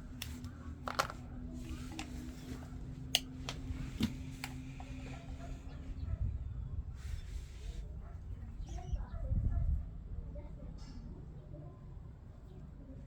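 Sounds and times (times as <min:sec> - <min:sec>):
small parts clicking: 0:00.1 - 0:01.2.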